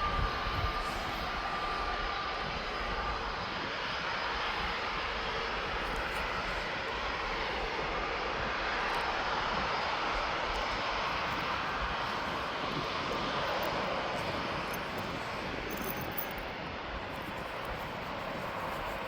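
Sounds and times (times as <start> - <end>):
jet airliner taking off: 0.0 - 19.0.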